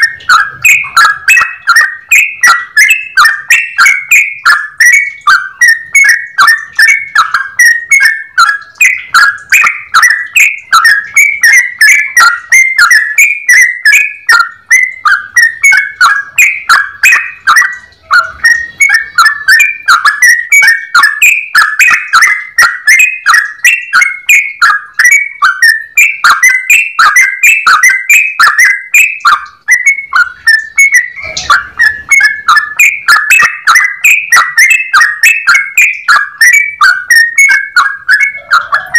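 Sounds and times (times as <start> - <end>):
bird singing bubbly whistles: 0.0 - 38.9.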